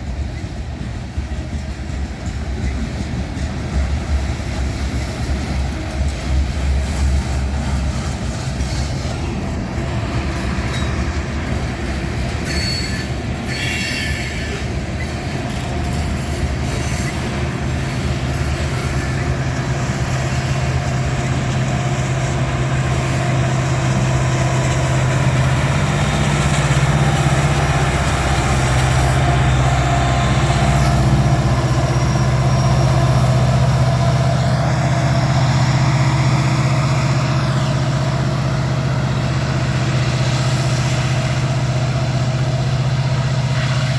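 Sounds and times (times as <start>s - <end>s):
locomotive engine drone: 0.0s - 43.9s
high-pitched wheel squeals: 12.4s - 15.2s, 15.9s - 17.4s.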